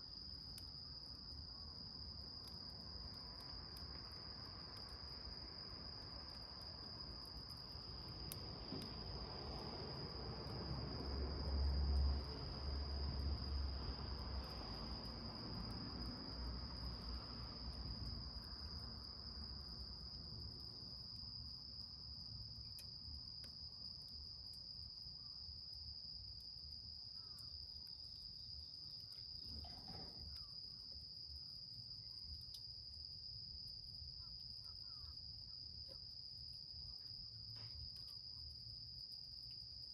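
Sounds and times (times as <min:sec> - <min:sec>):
insects trilling: 0:33.8 - 0:35.9.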